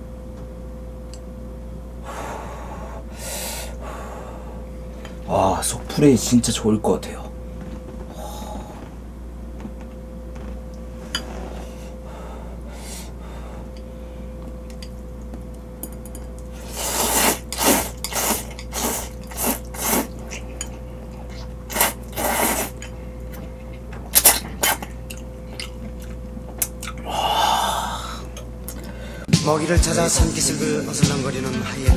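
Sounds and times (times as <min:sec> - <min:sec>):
man slurping noodles: 0:16.6 - 0:20.5, 0:21.3 - 0:22.9.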